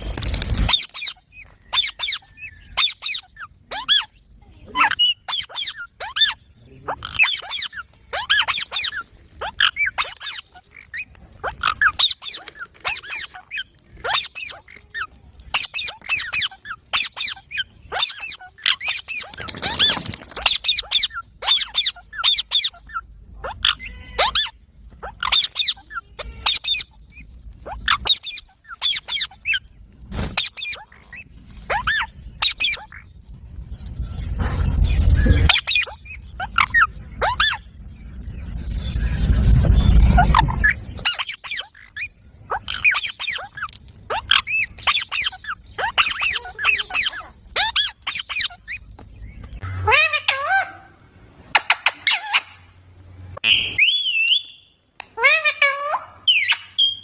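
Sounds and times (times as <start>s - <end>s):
parrot squawking: 0.6s - 29.7s, 30.3s - 33.1s, 35.0s - 37.7s, 39.9s - 48.9s, 49.6s - 52.8s, 53.4s - 57.0s.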